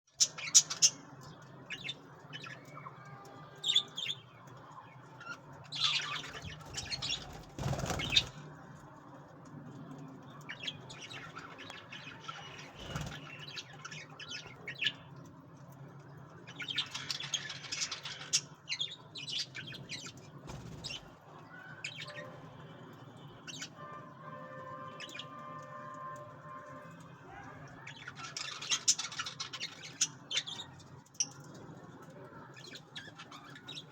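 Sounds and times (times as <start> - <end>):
wings flapping and rustling: 6.4 - 8.5, 12.6 - 13.4, 20.4 - 21.1.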